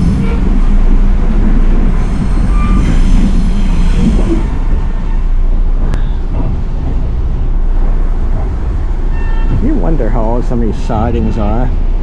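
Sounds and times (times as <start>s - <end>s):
train car wheels rumbling on rails: 0.0s - 12.0s
faint high squeal: 9.1s - 9.6s.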